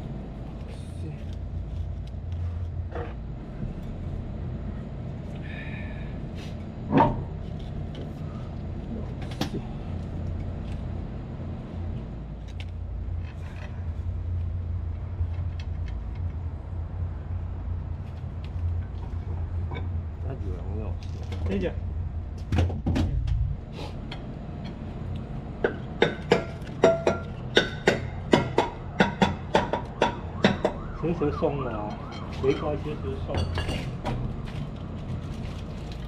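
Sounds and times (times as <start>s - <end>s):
machinery hum: 0.0s - 35.1s.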